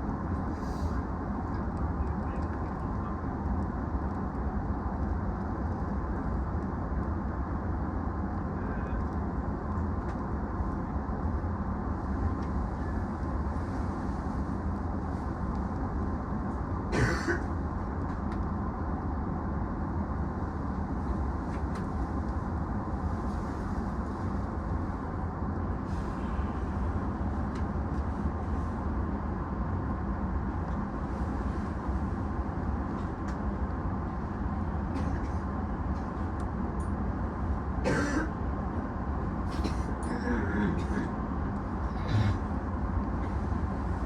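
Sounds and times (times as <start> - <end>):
electric train hum: 0.0 - 44.0
cough-like sound: 16.9 - 17.5, 37.8 - 38.3.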